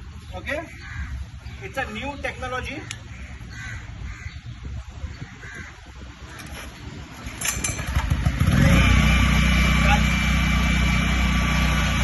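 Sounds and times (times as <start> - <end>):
crows cawing: 0.6 - 1.4, 2.8 - 4.5, 5.1 - 6.6
generator engine starting: 7.4 - 12.0.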